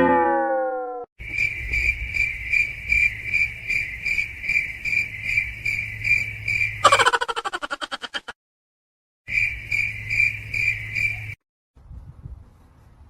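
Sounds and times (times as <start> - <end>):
insect high trill: 1.2 - 8.2, 9.3 - 11.4.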